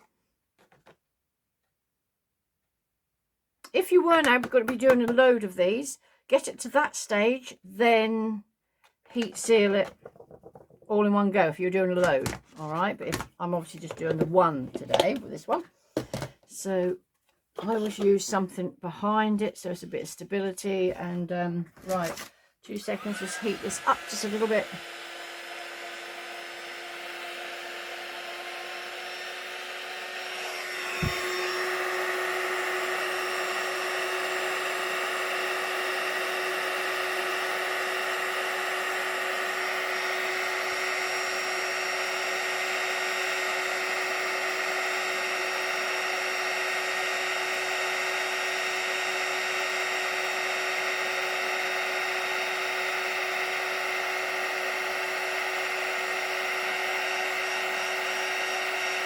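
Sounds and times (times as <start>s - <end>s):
heat tool blowing with motor hum: 22.8s - 59.0s.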